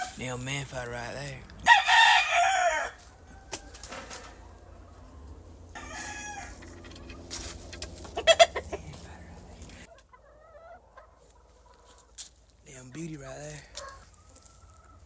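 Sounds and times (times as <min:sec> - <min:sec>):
chickens clucking: 0:00.0 - 0:15.0
steady low rumble: 0:04.4 - 0:09.9.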